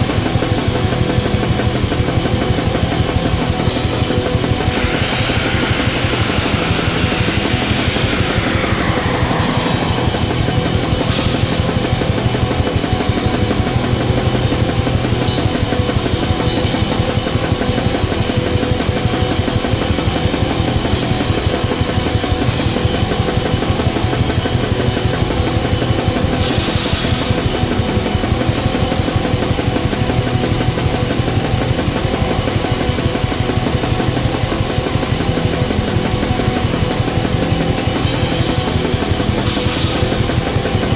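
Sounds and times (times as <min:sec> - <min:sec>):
distorted guitars: 0:00.0 - 0:29.4.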